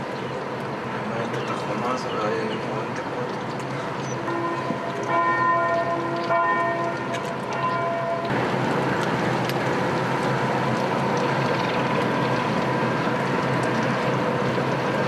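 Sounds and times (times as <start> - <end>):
church bells ringing: 4.2 - 8.3.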